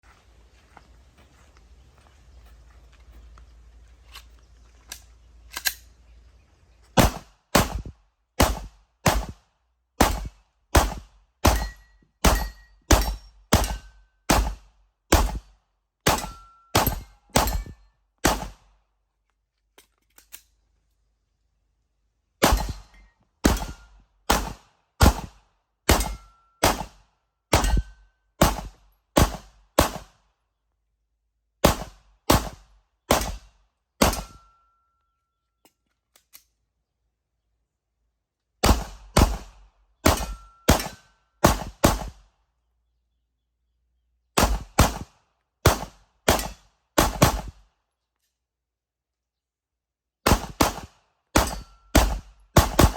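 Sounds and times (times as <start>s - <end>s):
pistol shots: 7.0s - 9.4s, 10.0s - 15.4s, 16.0s - 18.6s, 22.4s - 30.1s, 31.6s - 34.5s, 38.6s - 42.2s, 44.4s - 45.1s, 45.7s - 47.5s, 50.3s - 52.9s.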